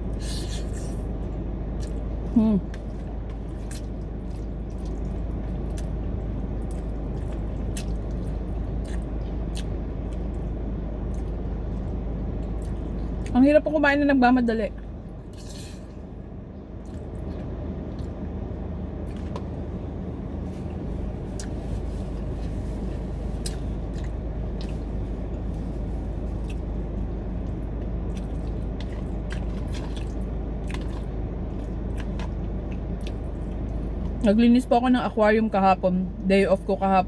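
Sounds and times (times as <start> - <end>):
low rumble: 0.0 - 37.0
person chewing: 1.8 - 2.1, 2.7 - 13.3, 20.6 - 25.6, 27.4 - 34.2.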